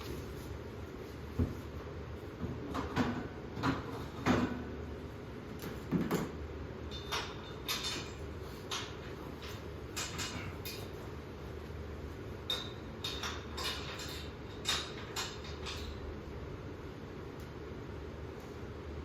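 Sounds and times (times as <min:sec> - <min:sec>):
metal scaffolding parts clanking: 0:12.5 - 0:16.0.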